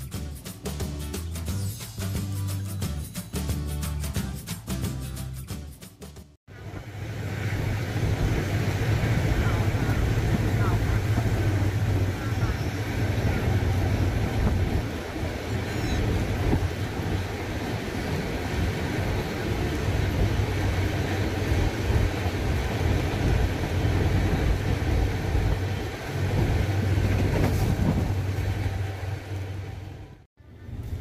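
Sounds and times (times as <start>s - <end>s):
train wheels rumbling on track: 6.6s - 31.0s.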